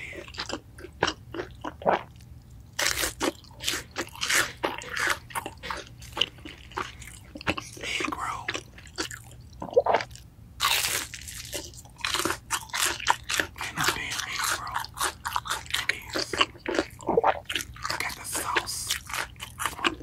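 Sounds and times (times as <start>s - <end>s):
crunchy food being chewed: 0.0s - 20.0s.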